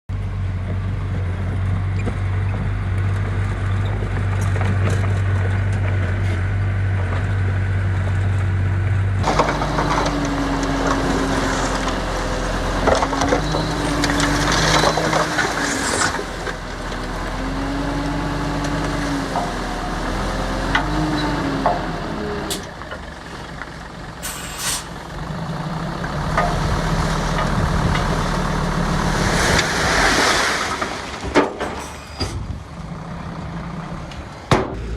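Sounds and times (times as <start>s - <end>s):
engine revving under load: 9.2s - 22.7s, 24.6s - 31.1s
diesel engine idling: 21.6s - 29.5s
metallic clanks and knocks: 31.2s - 32.4s.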